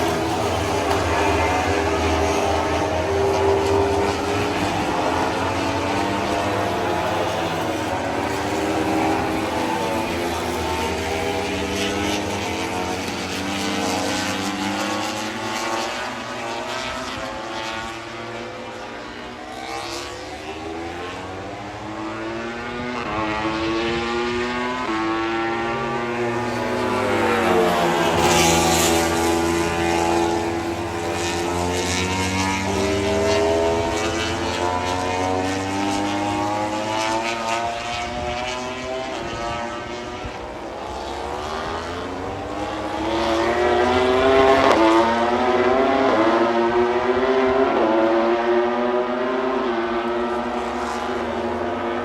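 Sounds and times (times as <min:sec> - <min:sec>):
racing motorcycle engines: 0:00.0 - 0:52.0.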